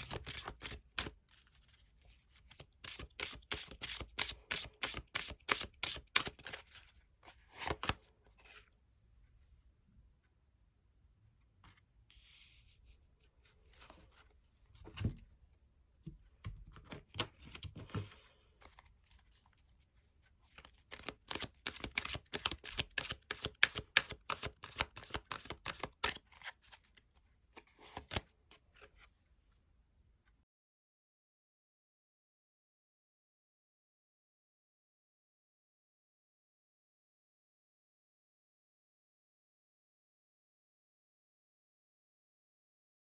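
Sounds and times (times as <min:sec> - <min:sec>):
cards rustling and tapping: 0:00.0 - 0:01.5, 0:02.4 - 0:06.8, 0:20.5 - 0:26.5.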